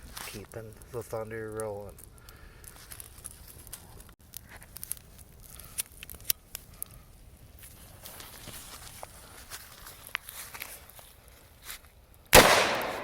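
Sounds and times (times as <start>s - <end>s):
small clicks and crackles: 0.0s - 12.3s
sharp snaps: 12.4s - 13.0s.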